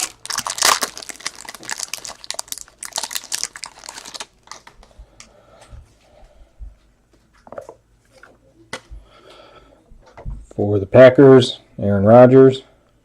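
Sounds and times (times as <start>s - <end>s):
plastic wrapping crinkling: 0.0s - 5.0s.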